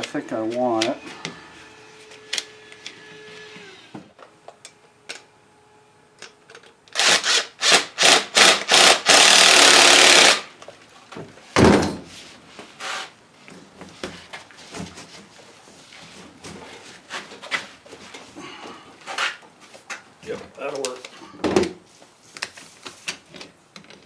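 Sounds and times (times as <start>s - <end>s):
saw cutting through hose: 7.0s - 10.5s
thump: 11.6s - 12.0s.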